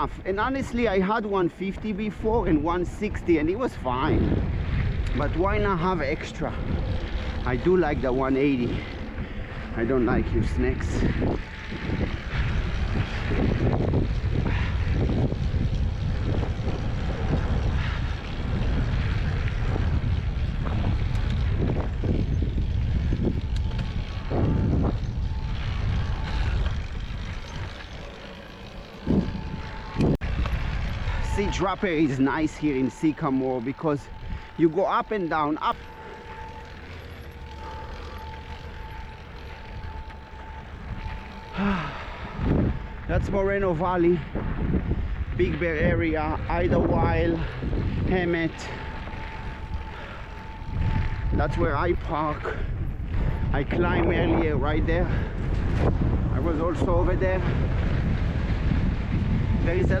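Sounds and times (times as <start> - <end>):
bike knocking and rattling: 0.0 - 60.0
faint steady whine: 0.0 - 60.0
wind rushing over microphone: 0.0 - 60.0
tyres on dirt: 3.6 - 46.6.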